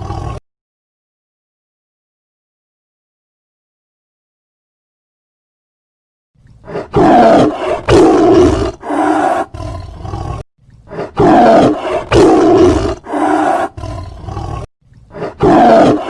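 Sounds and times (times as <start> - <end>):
tiger roaring: 0.0 - 0.4, 6.6 - 16.0.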